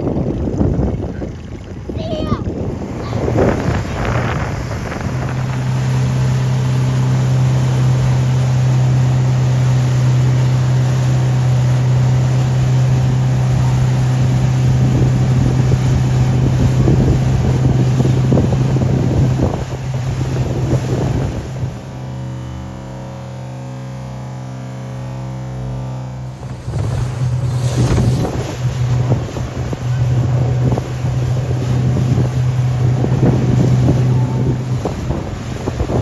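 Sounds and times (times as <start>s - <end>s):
wind buffeting microphone: 0.0s - 23.4s, 26.3s - 36.0s
motorboat engine humming: 0.0s - 36.0s.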